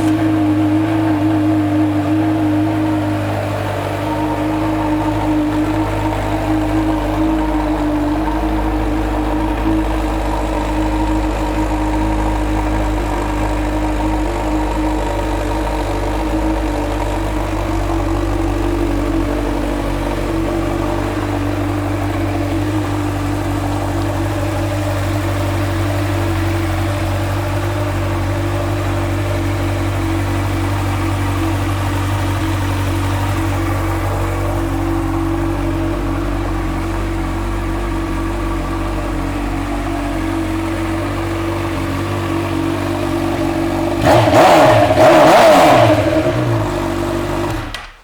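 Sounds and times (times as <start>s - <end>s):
motorcycle engine idling: 0.0s - 48.0s.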